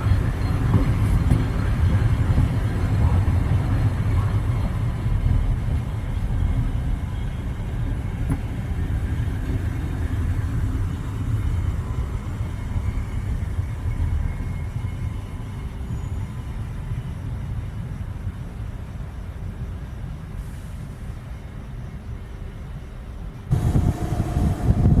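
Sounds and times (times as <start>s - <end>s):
train passing: 0.0s - 25.0s.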